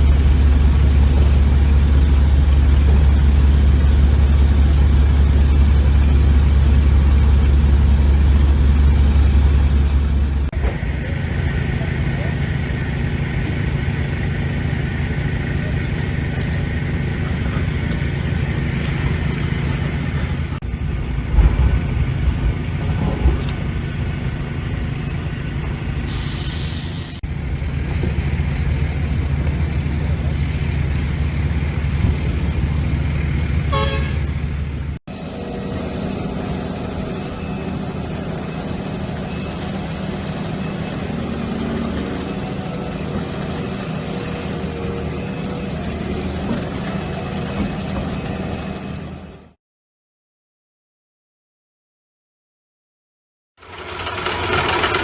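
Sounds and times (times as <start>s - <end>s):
diesel machinery engine running: 0.0s - 49.6s, 53.6s - 55.0s
short hiss: 26.1s - 27.2s.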